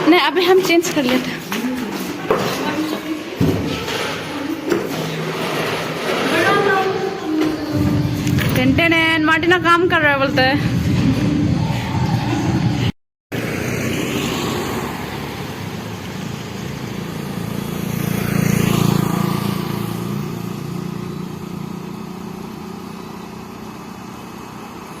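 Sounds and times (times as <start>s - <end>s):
vehicle engine passing by: 10.3s - 25.0s.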